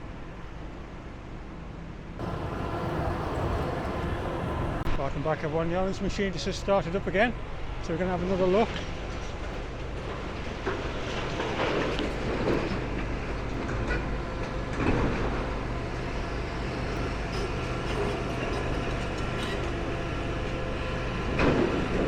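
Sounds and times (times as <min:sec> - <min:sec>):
excavator diesel engine running: 0:02.2 - 0:05.0, 0:07.6 - 0:22.0.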